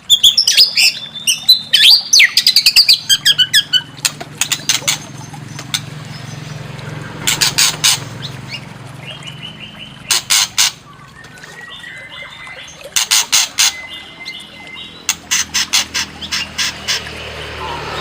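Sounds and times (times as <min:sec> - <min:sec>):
harsh rasping bird calls: 0:00.0 - 0:18.0
whistled bird trills: 0:00.1 - 0:03.9.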